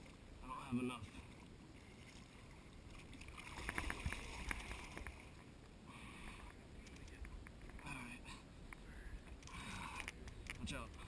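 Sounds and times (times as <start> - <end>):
water splashing: 0.9 - 5.5.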